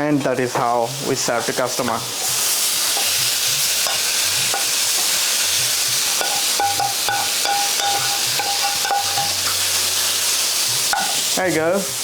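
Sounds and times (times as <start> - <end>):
curry sizzling on a griddle: 0.0 - 12.0.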